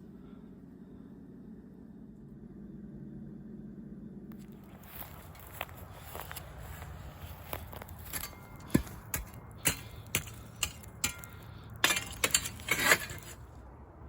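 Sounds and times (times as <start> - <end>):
rasping scrapes: 8.0 - 13.5.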